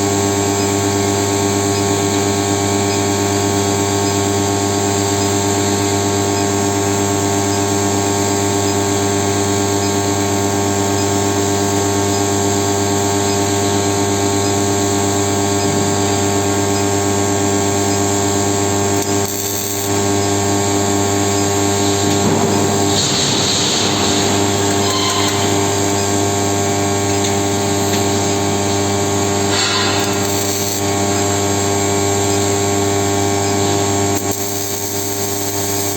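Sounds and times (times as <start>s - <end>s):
steady electrical hum: 0.0s - 35.9s
high whine: 12.6s - 31.9s.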